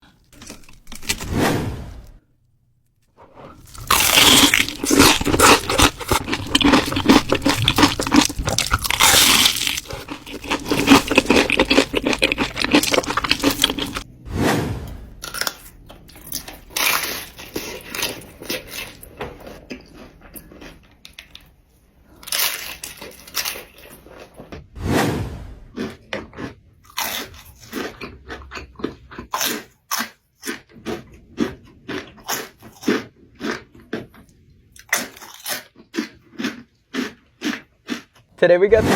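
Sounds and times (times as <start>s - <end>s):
crunchy food chewing: 0.1s - 1.3s, 3.6s - 14.1s, 15.3s - 24.5s, 25.8s - 38.3s.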